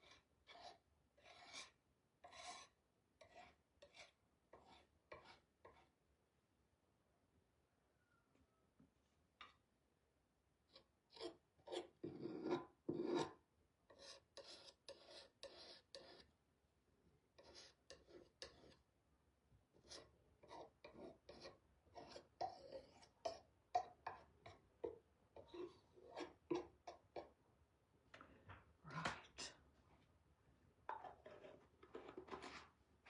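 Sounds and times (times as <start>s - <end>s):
scratchy rubbing on a surface: 0.0s - 5.9s, 10.7s - 16.3s, 17.4s - 18.8s, 19.8s - 23.4s, 25.4s - 27.3s, 31.0s - 32.7s.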